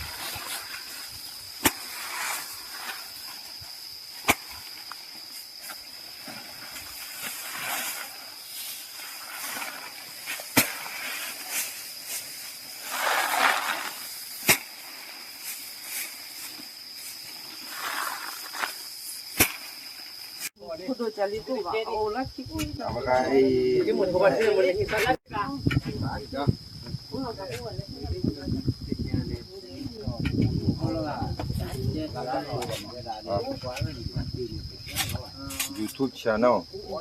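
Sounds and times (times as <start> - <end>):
soft hissing rustling: 0.0 - 20.6
insects trilling: 0.0 - 37.0.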